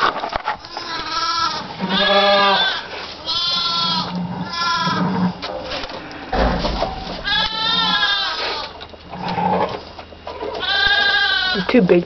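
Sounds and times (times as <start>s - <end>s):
goat bleating: 0.6s - 5.3s, 7.0s - 8.8s, 10.5s - 11.8s
dull low thump: 6.3s - 7.6s.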